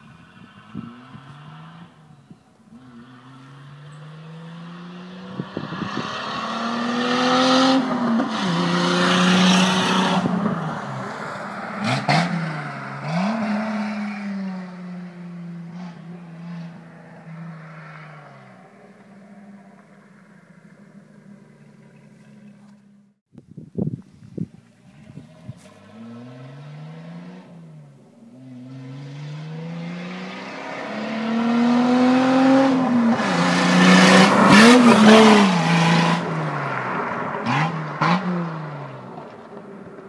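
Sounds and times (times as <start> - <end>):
car engine accelerating hard: 2.8 - 14.4, 25.0 - 39.6.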